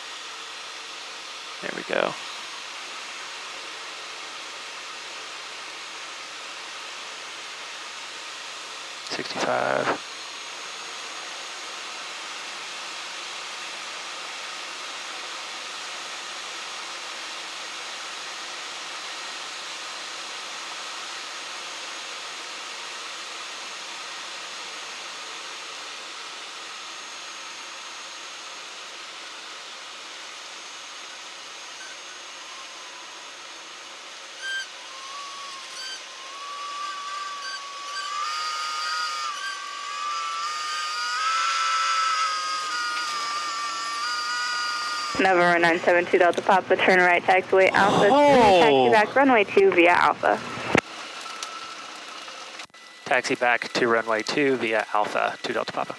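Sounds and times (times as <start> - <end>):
airplane cabin hiss: 9.1 - 10.1.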